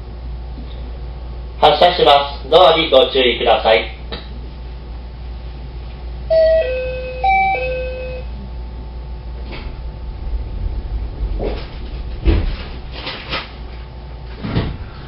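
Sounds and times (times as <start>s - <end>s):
low hum of train: 0.0s - 15.0s
two-note falling door chime: 6.3s - 8.3s.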